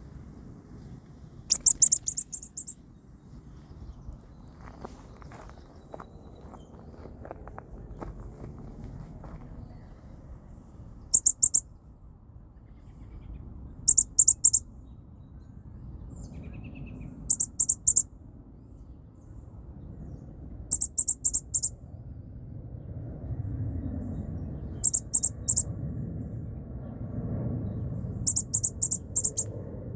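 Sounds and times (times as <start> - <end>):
baby bird peeping: 1.5 - 2.8, 11.1 - 11.6, 13.9 - 14.6, 17.2 - 18.0, 20.7 - 21.7, 24.8 - 25.6, 28.3 - 29.5.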